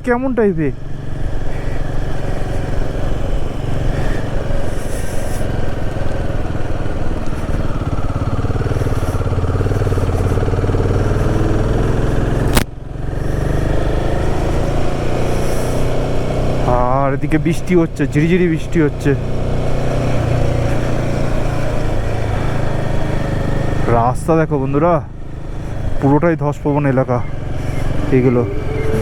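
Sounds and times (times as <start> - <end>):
motorcycle engine running: 0.0 - 29.0
wind and road noise: 0.0 - 29.0.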